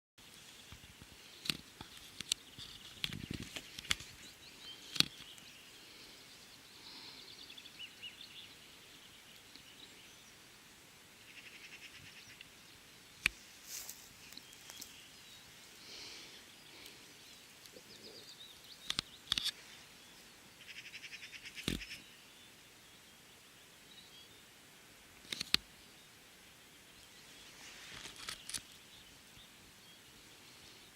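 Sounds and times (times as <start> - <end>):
small birds trilling: 0.2 - 10.6, 11.2 - 24.5.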